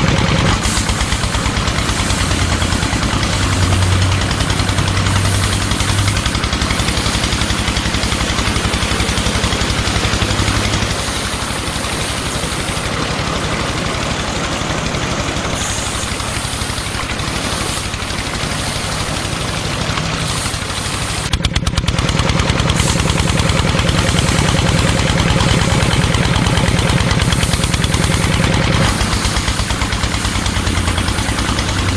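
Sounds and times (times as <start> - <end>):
motor pulsing: 0.0 - 31.9.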